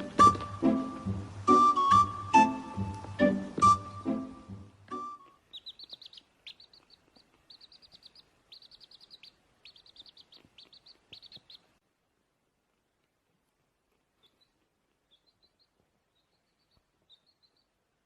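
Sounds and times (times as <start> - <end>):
small bird chirping: 4.9 - 11.8, 13.9 - 18.0.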